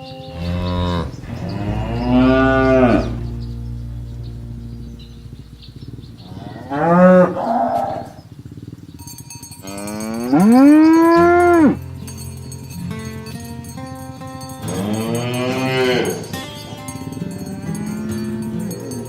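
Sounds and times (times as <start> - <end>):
cows mooing: 0.0 - 8.3, 9.6 - 13.1, 14.6 - 16.8.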